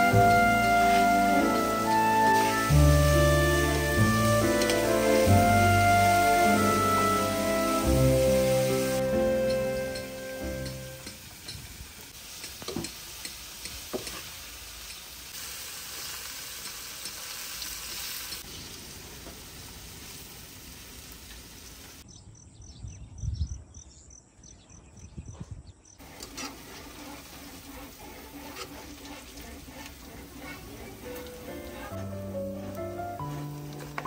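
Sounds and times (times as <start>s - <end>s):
squid deep-frying in oil: 0.0s - 22.0s.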